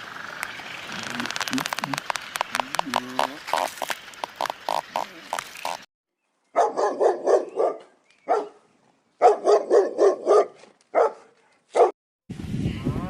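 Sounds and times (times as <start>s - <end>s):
dog barking: 6.6s - 8.6s, 9.2s - 12.0s.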